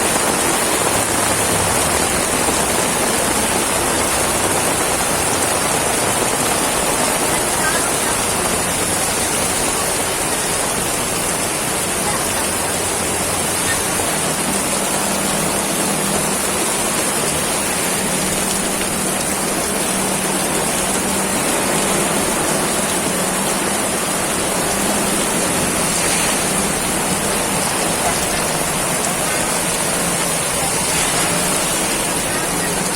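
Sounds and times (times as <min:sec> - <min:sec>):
heavy rain pouring: 0:00.0 - 0:32.9.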